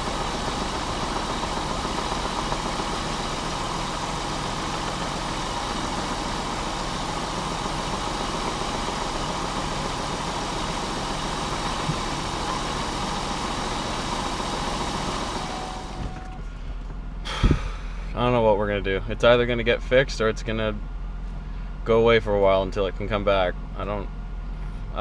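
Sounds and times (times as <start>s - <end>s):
car engine idling with knock: 0.0s - 18.2s.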